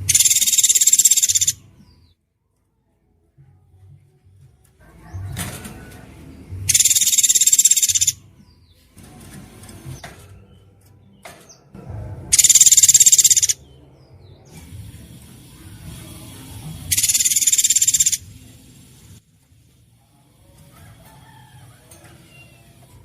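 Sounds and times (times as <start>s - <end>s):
songbird shrill rapid trill: 0.1s - 1.6s, 6.7s - 8.2s, 12.3s - 13.6s, 16.9s - 18.3s.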